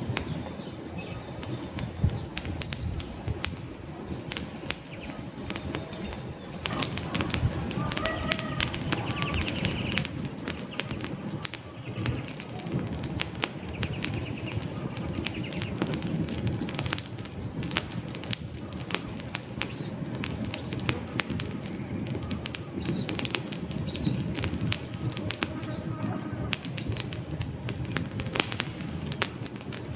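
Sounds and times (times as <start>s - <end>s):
campfire crackling: 0.0s - 29.9s
low rush of flames: 0.0s - 29.9s
faint bird calls: 3.9s - 16.8s.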